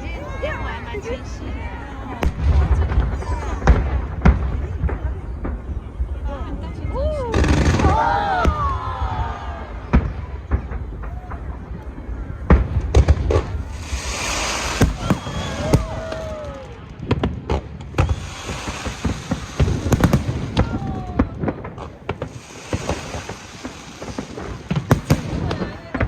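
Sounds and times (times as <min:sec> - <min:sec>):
fireworks bursting bangs: 0:00.0 - 0:26.0
fireworks crackling: 0:00.0 - 0:26.0
falling firework whistles: 0:13.6 - 0:16.8, 0:17.9 - 0:26.0.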